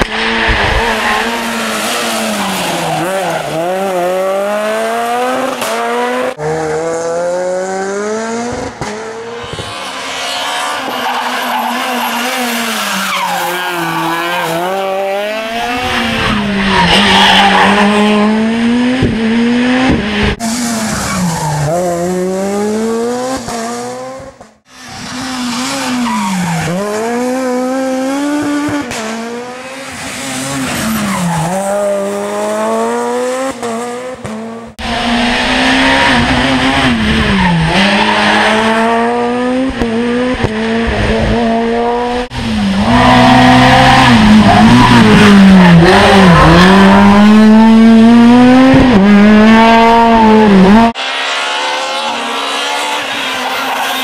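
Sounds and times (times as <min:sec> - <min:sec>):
rally car engines revving: 0:00.0 - 0:54.0
tyre squeal: 0:52.0 - 0:54.0.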